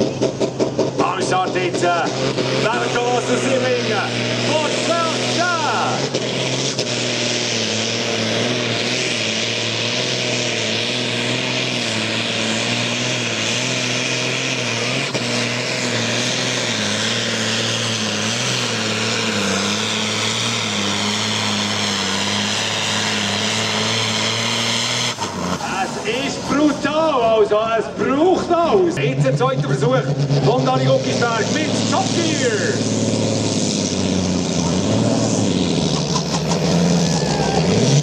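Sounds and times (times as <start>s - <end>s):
tractor engine droning: 0.0s - 38.0s.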